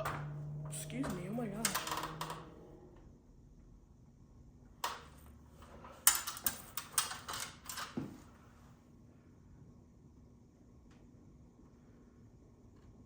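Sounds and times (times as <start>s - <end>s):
ceiling fan motor humming: 0.0s - 7.2s.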